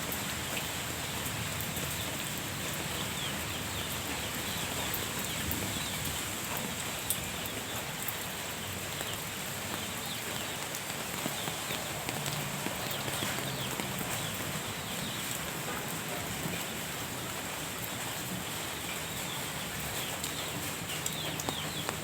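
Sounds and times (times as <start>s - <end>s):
rain falling on a garden: 0.0s - 22.0s.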